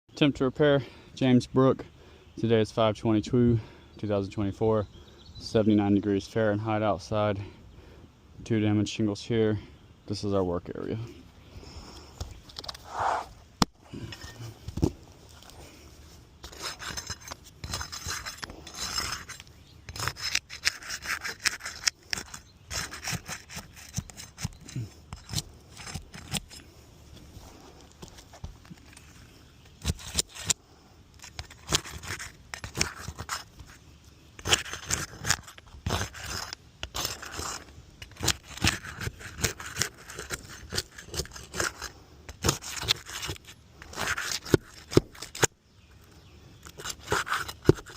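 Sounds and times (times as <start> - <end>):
hand tool scraping roof shingles: 16.4 - 26.6, 27.5 - 30.6, 31.2 - 33.8, 34.4 - 45.5, 46.6 - 47.9.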